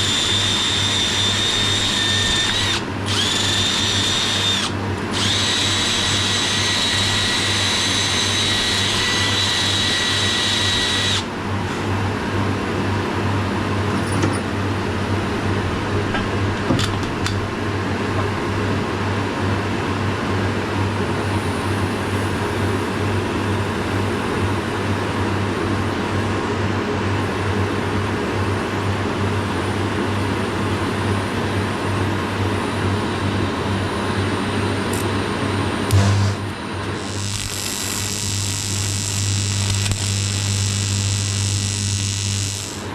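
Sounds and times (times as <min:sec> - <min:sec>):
electric drill whining: 0:00.0 - 0:11.3, 0:35.9 - 0:42.9
low machine hum: 0:00.0 - 0:20.3, 0:32.5 - 0:42.9.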